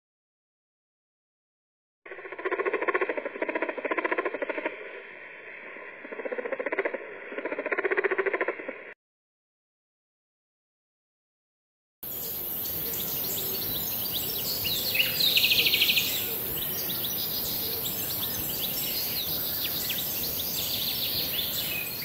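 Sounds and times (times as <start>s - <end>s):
background hiss: 12.0s - 22.0s.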